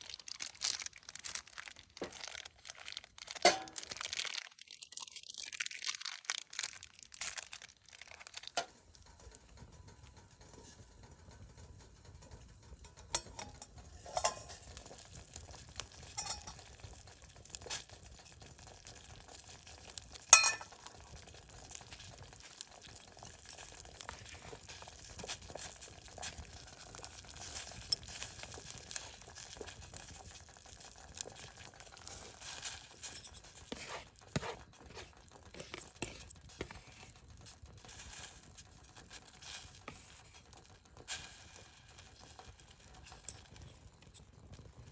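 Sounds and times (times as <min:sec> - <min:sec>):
wood fire crackling: 0:00.0 - 0:04.6, 0:06.3 - 0:44.9.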